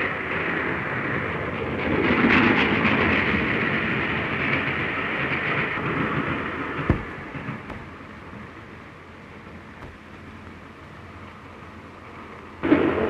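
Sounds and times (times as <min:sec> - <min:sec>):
train passing on rails: 0:00.0 - 0:13.0.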